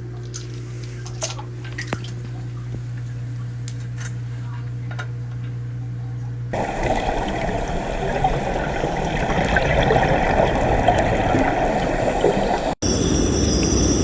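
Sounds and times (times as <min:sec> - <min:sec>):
water splashing and trickling: 0:00.0 - 0:02.4, 0:06.6 - 0:14.0.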